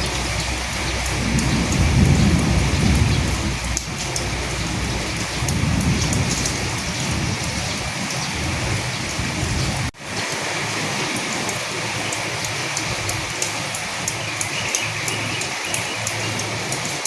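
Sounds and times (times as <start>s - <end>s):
distant thunder rumble: 0.0s - 10.0s
rain falling: 0.0s - 17.0s.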